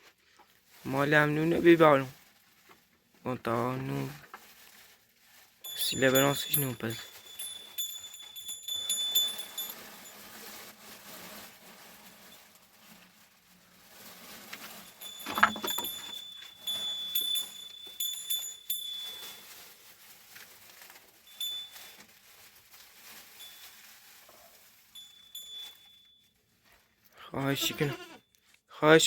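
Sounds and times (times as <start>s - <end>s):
metal ringing high tone: 15.0s - 19.3s.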